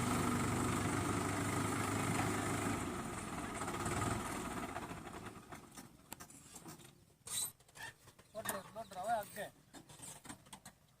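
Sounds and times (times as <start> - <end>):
tractor diesel engine running: 0.0 - 6.2.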